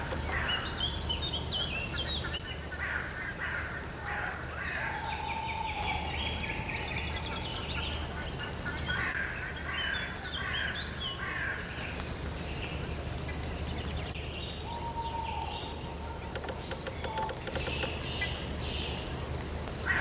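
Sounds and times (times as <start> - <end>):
insect chirping: 15.2 - 19.9
rapid rattling animal call: 15.9 - 18.5.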